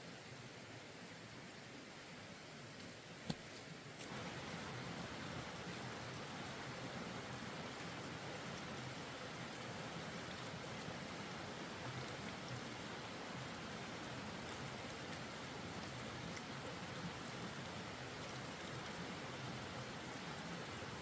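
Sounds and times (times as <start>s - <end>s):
running water spraying: 4.0s - 18.6s.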